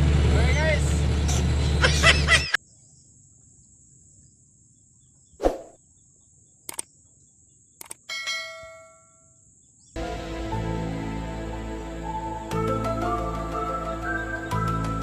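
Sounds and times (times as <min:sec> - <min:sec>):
quick clicks: 0:06.6 - 0:06.9, 0:07.8 - 0:08.1.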